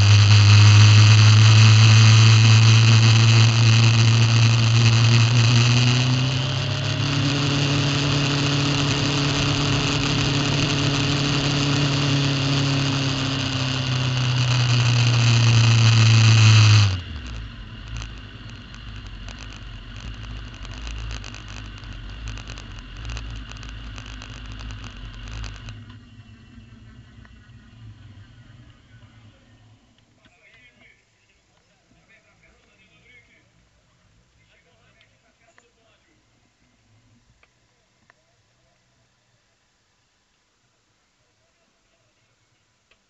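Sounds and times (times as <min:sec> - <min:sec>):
low rumble: 0:00.0 - 0:30.0
motorcycle engine running: 0:00.0 - 0:30.0.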